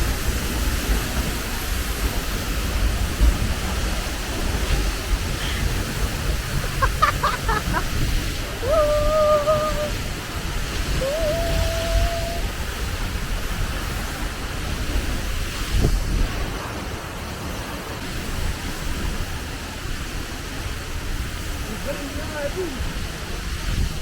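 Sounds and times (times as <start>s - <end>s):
waterfall rushing and rumbling: 0.0s - 24.0s
person calling out: 8.6s - 10.0s, 10.9s - 12.5s.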